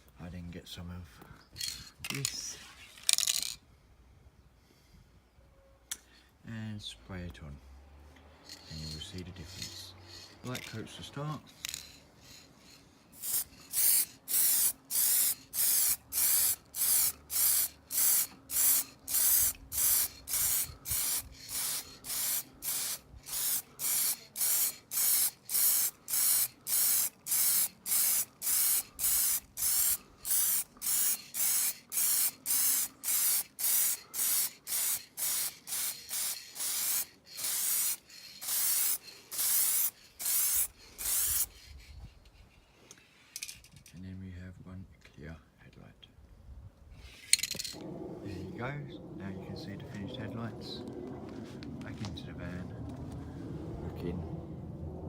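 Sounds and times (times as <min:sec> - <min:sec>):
aerosol spray can bursts: 0:13.2 - 0:41.5.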